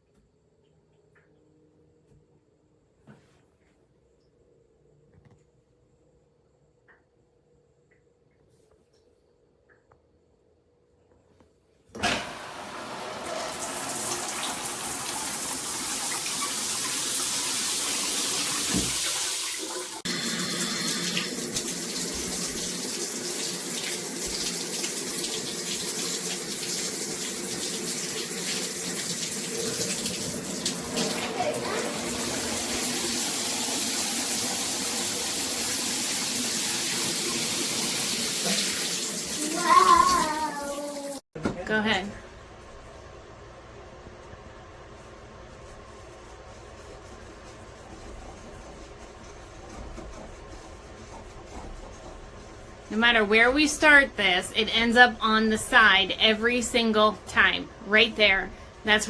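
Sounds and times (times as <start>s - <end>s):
shower water running into tub: 12.0s - 41.3s.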